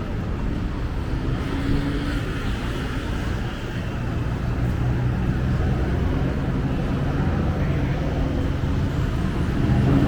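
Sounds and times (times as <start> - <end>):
passing vehicle engines and tyres: 0.0 - 10.0.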